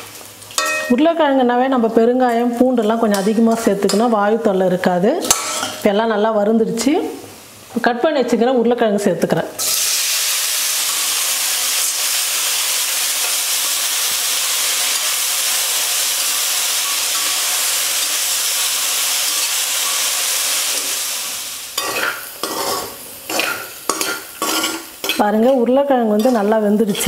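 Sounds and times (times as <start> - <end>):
potatoes sizzling in hot oil: 0.0 - 27.0
spatula scraping and knocking pan: 21.8 - 25.3.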